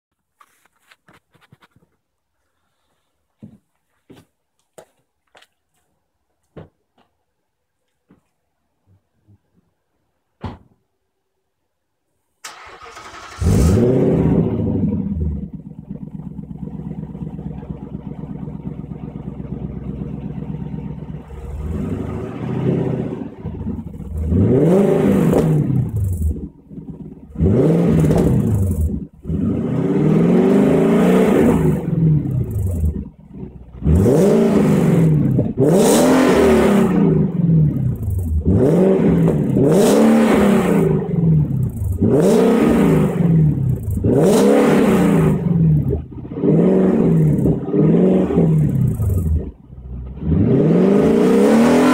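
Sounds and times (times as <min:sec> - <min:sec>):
car engine idling and revving: 0:12.5 - 0:51.9.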